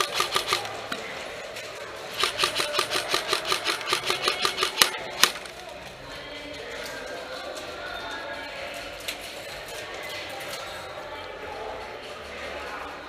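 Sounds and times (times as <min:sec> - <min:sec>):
airsoft gun firing bursts: 0:00.0 - 0:00.8, 0:02.1 - 0:05.5.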